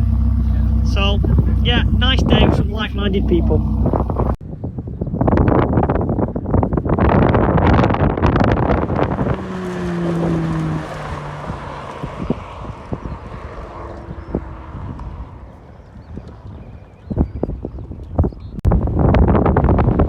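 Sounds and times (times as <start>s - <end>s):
low steady hum: 0.0s - 4.4s
wind buffeting microphone: 0.0s - 20.0s.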